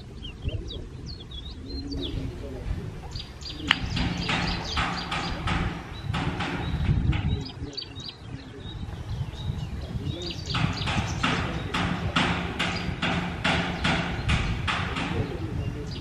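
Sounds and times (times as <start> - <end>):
small bird chirping: 0.0 - 11.8.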